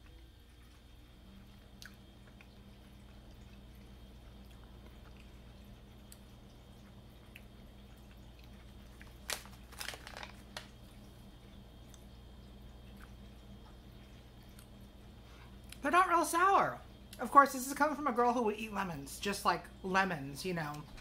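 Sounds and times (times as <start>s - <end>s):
chewing gummy candy: 0.0s - 15.8s
plastic pouch crackling: 9.0s - 10.8s.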